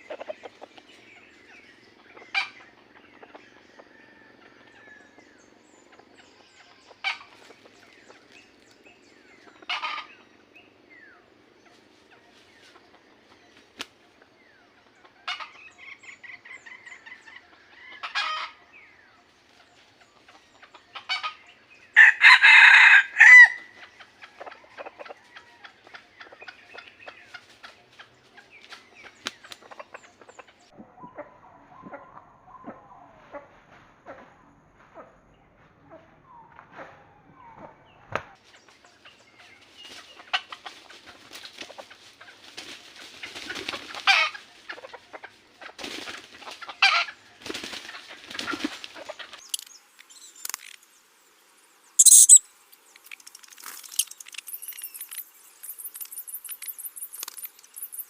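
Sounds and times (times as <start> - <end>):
rooster crowing: 22.0 - 23.7
faint clicking: 52.7 - 58.0.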